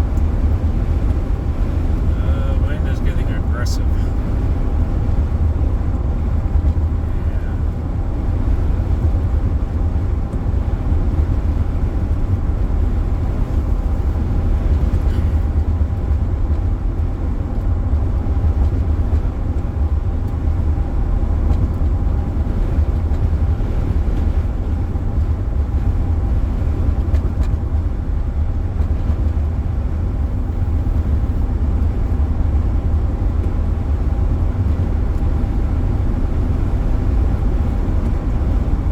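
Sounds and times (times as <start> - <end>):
faint steady hum: 0.0 - 8.6
car road and engine rumble: 0.0 - 38.9.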